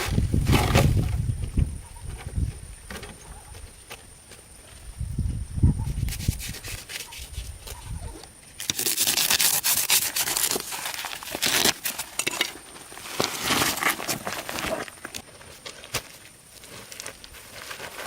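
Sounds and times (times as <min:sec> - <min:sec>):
rasping and scraping: 0:05.9 - 0:08.0, 0:08.6 - 0:15.3.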